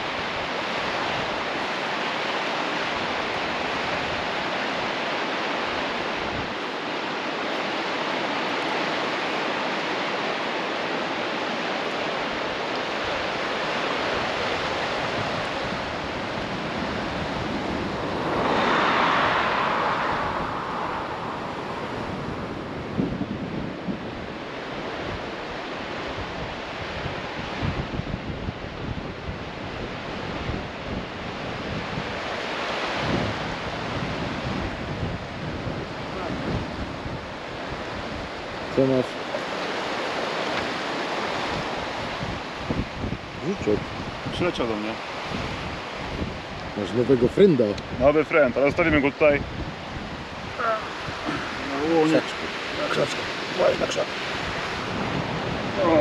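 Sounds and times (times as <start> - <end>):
river water rushing: 0.0 - 56.0
wind knocking on microphone: 45.2 - 47.0.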